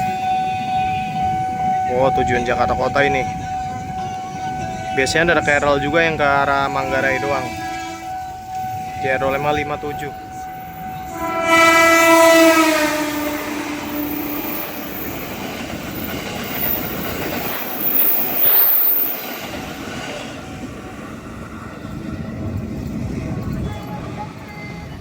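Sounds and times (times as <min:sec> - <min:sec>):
train horn blast: 0:00.0 - 0:19.1
train wheels clattering on rails: 0:13.7 - 0:25.0.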